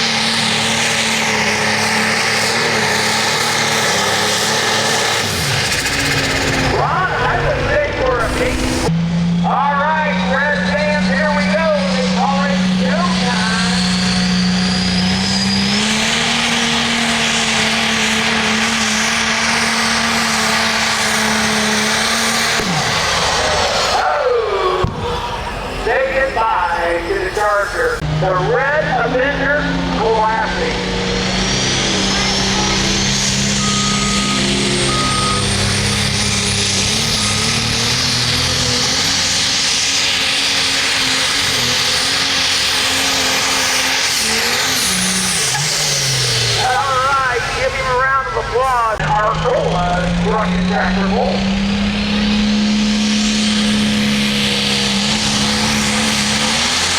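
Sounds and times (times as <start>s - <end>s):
engine at full throttle: 0.0s - 56.9s
high whistle: 32.1s - 36.4s.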